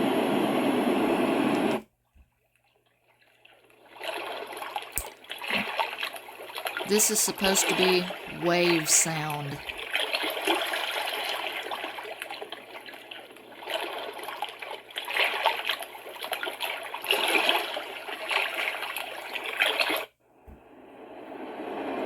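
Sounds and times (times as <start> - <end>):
ocean waves from small speaker: 6.8 - 9.6.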